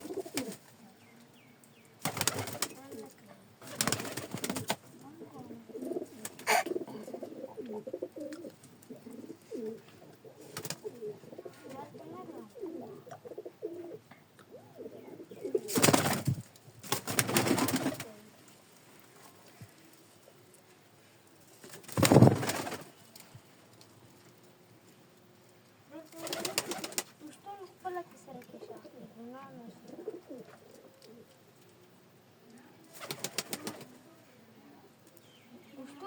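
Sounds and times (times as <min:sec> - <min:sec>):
pigeons cooing: 0:00.0 - 0:00.6, 0:05.2 - 0:16.0, 0:29.8 - 0:31.3.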